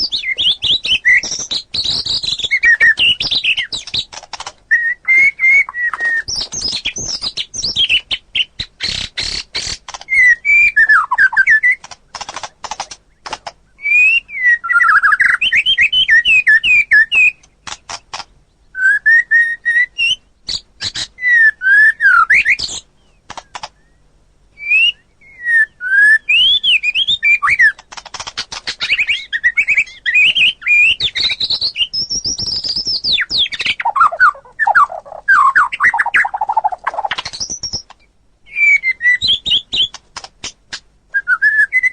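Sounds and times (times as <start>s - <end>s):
bird singing whistles: 0.0s - 4.1s, 4.7s - 11.8s, 13.8s - 17.4s, 18.7s - 22.8s, 24.6s - 27.8s, 28.8s - 40.0s, 41.1s - 41.9s
bird clicking rattles: 1.2s - 4.6s, 8.9s - 10.2s, 11.8s - 13.6s, 17.4s - 18.3s, 23.3s - 23.8s, 27.8s - 29.0s, 36.9s - 38.0s.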